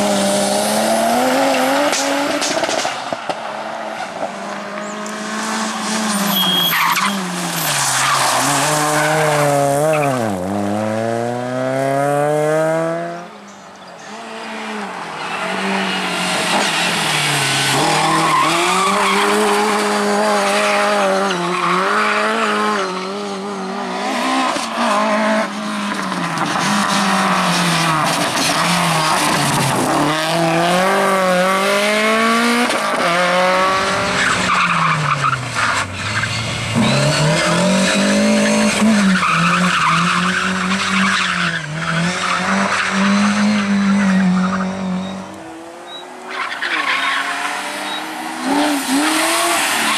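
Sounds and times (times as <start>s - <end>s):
rally car engine revving: 4.0s - 13.3s, 14.0s - 49.9s
tyre squeal: 5.7s - 10.4s, 20.6s - 23.9s, 34.0s - 45.3s, 45.9s - 49.9s.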